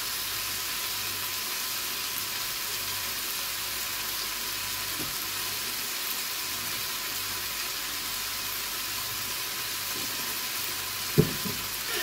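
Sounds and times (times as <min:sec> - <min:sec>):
potatoes sizzling in a pot: 0:00.0 - 0:12.0
short knock: 0:11.2 - 0:11.6.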